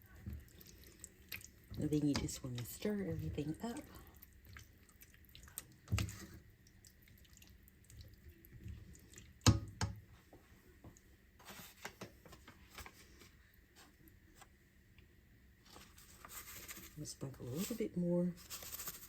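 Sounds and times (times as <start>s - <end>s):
spoon stirring wet food: 0.0s - 10.0s.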